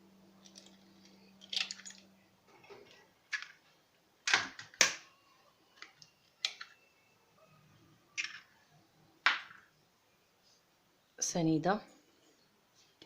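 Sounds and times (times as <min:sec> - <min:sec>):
eggs being cracked: 0:00.4 - 0:02.1, 0:04.3 - 0:05.1, 0:05.8 - 0:06.8.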